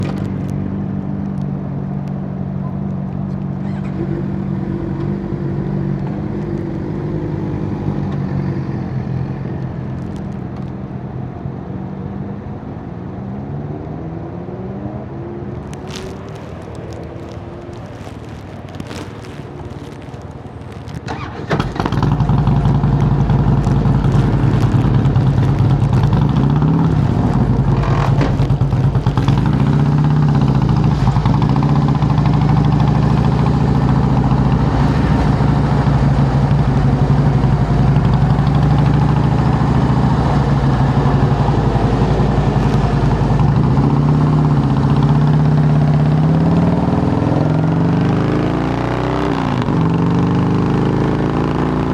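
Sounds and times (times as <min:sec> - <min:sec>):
motorcycle engine idling: 0:21.1 - 0:34.8.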